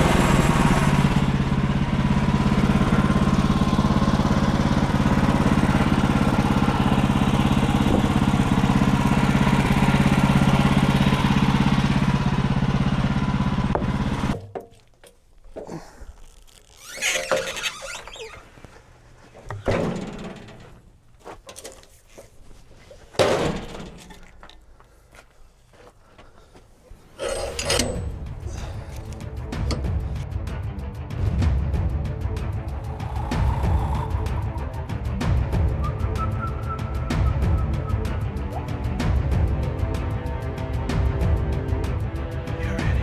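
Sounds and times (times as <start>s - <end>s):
sawmill engine running: 0.0s - 14.7s, 16.5s - 25.4s, 26.2s - 43.0s
rubbing and scraping: 13.7s - 30.4s.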